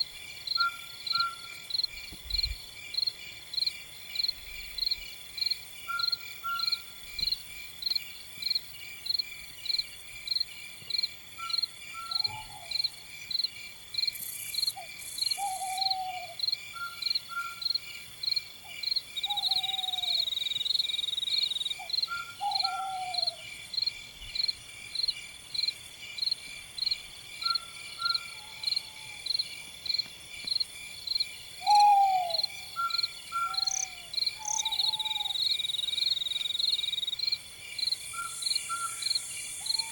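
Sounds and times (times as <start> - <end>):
crickets chirping: 0.0 - 39.9
high insect trill: 0.0 - 39.9
night bird calling: 0.6 - 1.7, 5.9 - 6.9, 11.4 - 12.9, 14.8 - 17.8, 19.2 - 23.4, 31.6 - 36.6, 38.1 - 39.9.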